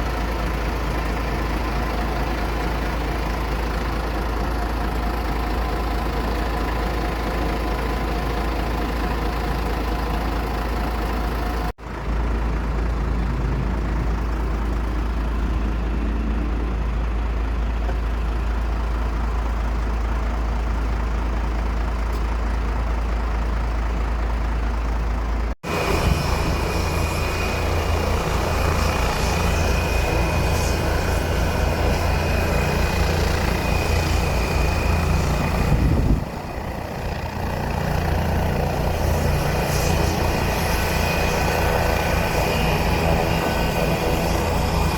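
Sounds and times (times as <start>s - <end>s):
aircraft engines rumbling: 0.0s - 44.9s
steady high whine: 25.6s - 44.9s
fast low pulsing: 25.7s - 44.9s.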